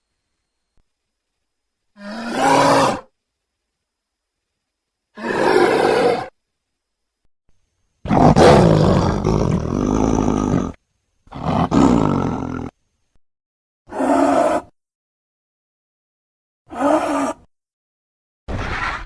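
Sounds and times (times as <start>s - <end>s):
monster roars: 8.1s - 12.7s.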